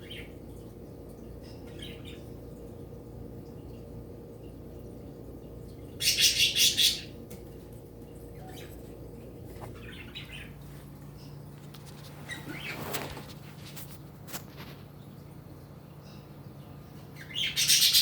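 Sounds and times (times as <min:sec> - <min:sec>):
low steady hum: 0:00.0 - 0:18.0
faint rustles: 0:10.6 - 0:15.0
bird flapping wings: 0:11.8 - 0:14.8.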